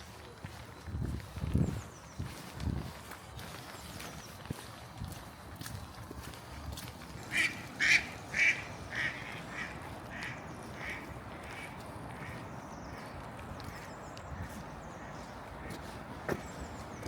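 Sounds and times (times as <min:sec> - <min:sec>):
duck quacking: 0:07.3 - 0:12.4.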